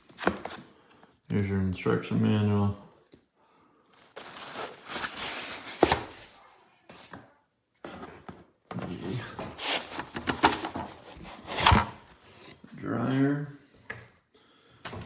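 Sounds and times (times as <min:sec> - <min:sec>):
packaging rustling: 0:03.9 - 0:07.2, 0:09.4 - 0:12.6.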